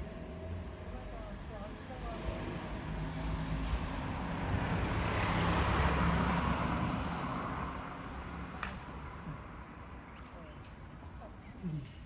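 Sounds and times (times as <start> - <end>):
vehicle passing by: 0.0 - 7.8.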